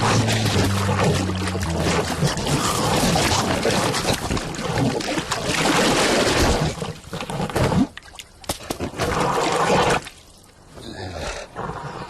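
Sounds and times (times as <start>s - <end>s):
short gliding tones: 0.0s - 2.8s.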